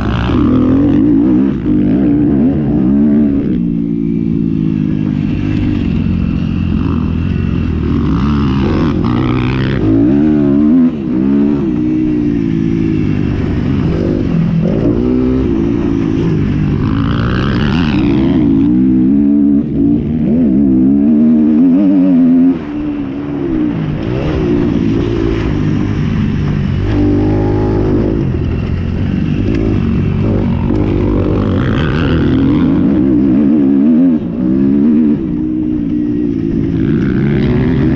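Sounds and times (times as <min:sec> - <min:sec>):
motocross bikes revving: 0:00.0 - 0:37.9.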